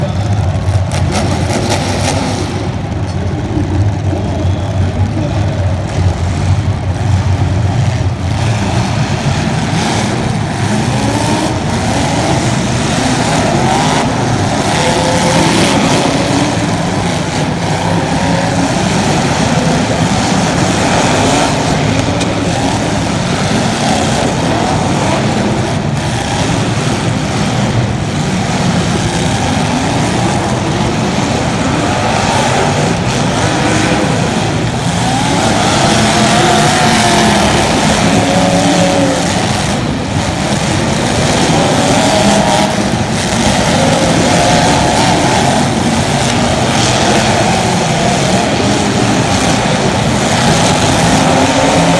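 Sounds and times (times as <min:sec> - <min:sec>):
racing engines revving: 0:00.0 - 0:51.9.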